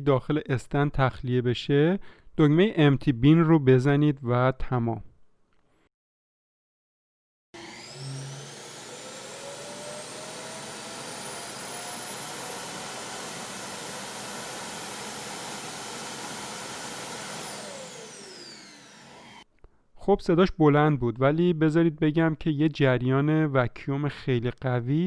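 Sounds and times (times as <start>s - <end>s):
suction motor whining: 7.6s - 19.4s.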